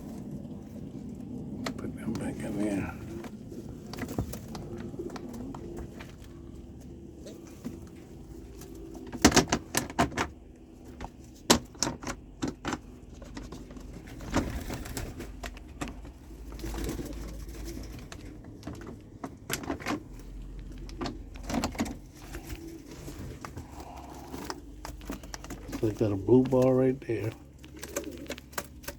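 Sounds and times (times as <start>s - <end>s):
pigeons cooing: 0.0s - 11.3s, 12.0s - 28.9s.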